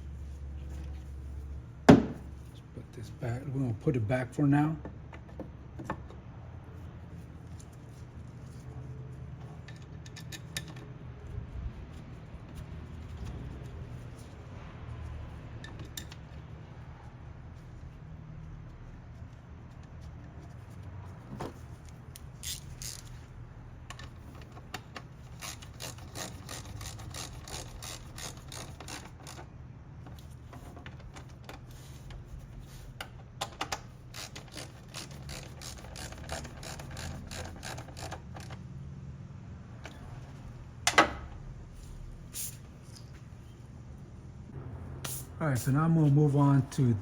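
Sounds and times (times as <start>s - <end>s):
hand ratchet clicking: 22.2s - 23.2s, 25.3s - 29.4s, 33.7s - 38.6s.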